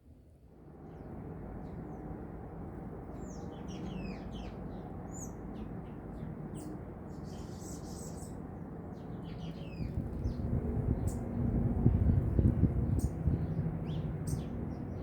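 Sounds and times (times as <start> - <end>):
small songbirds chirping: 3.1 - 15.0.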